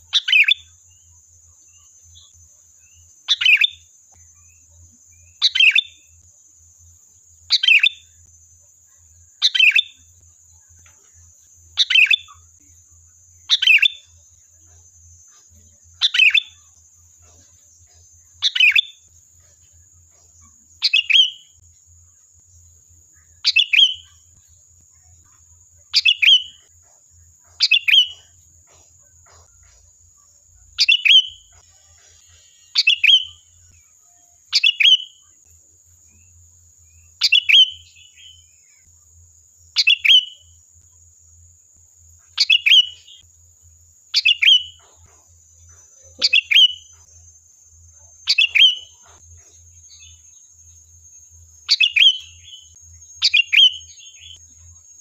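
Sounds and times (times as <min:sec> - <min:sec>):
faint high-pitched tone: 0:30.5 - 0:35.4.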